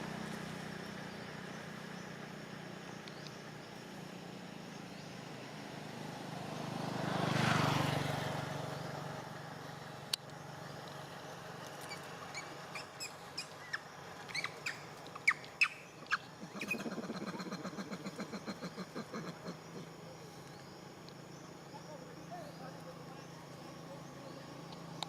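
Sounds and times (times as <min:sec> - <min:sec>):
vehicle passing: 0:05.1 - 0:15.4
pulsing insect trill: 0:10.2 - 0:25.0
high falling bird chirps: 0:11.8 - 0:19.0.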